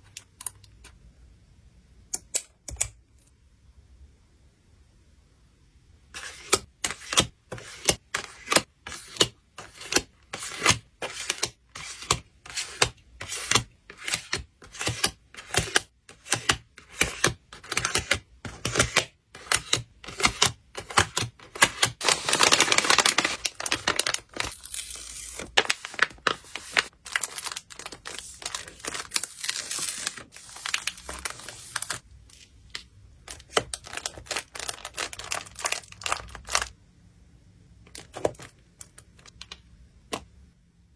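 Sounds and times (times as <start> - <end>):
plastic packaging rustling: 20.8 - 36.7
plastic crinkling: 21.5 - 32.5, 33.2 - 36.7.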